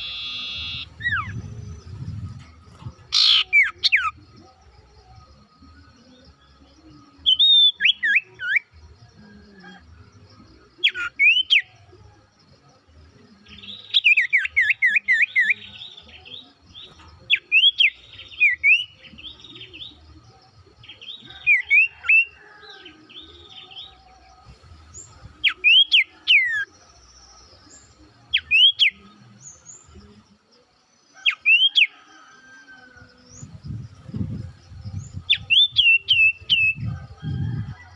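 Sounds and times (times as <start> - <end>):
songbird whistling: 0.0 - 2.1, 3.1 - 4.2, 7.2 - 8.7, 10.8 - 11.7, 25.4 - 26.7, 27.6 - 29.0, 35.1 - 37.9.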